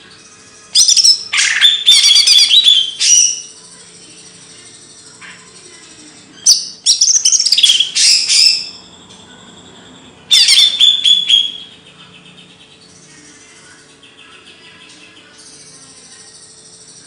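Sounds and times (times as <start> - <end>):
songbird chirps and whistles: 0.0 - 13.1.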